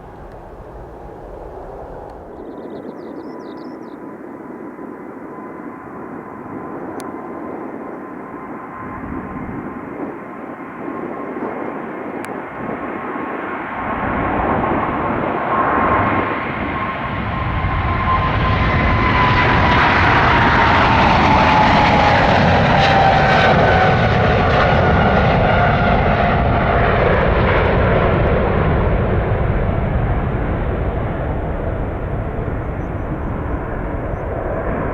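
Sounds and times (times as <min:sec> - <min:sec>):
jet engine whine: 0:00.0 - 0:34.9
jet taking off: 0:00.0 - 0:34.9.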